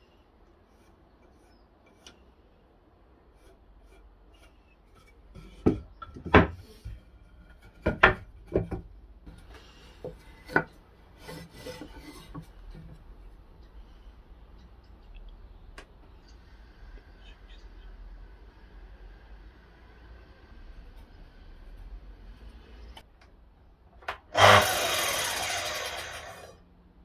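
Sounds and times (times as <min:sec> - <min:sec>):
wood rubbing and scraping: 0:03.2 - 0:13.1.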